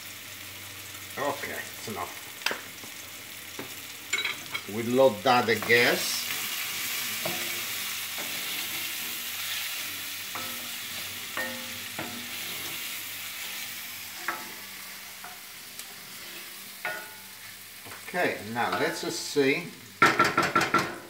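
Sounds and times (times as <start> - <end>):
onion sizzling in oil: 0.0 - 21.0
spoon knocking against pot: 20.0 - 21.0.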